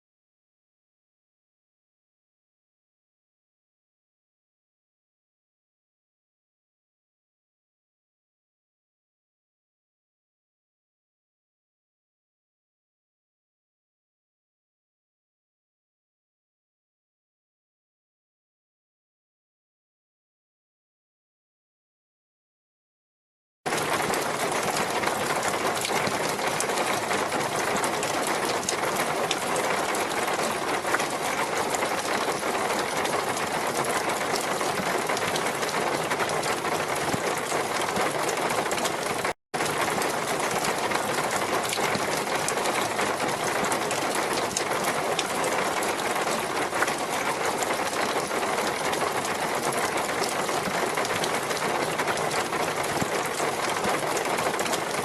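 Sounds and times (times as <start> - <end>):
rushing water with crackle: 23.7 - 55.0.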